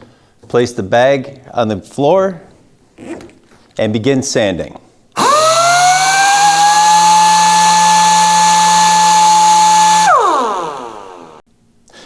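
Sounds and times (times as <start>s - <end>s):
air sander whining: 5.2s - 11.4s.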